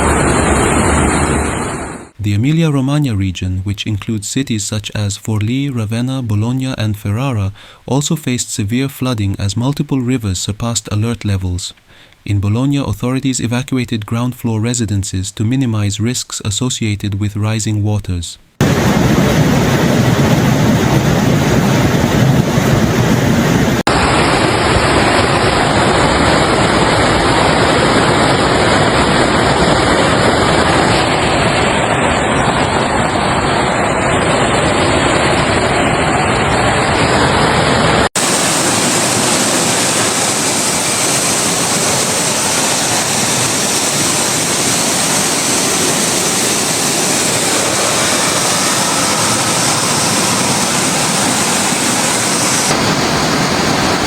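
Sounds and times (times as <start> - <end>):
rushing floodwater: 18.6 - 54.0.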